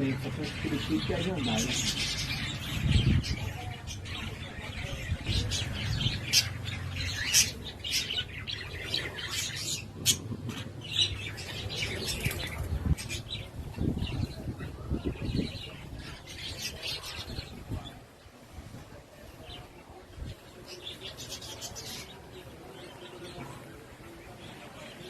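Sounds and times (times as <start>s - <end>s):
parakeets squawking: 0.0s - 17.8s.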